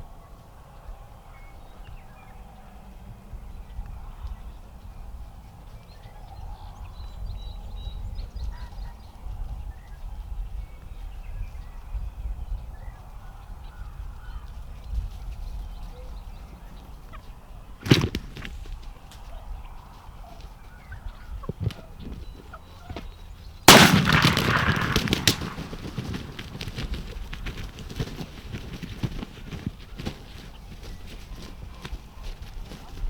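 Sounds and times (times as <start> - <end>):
low wind rumble on microphone: 0.0 - 23.8
shotgun shot with echo: 23.7 - 26.5.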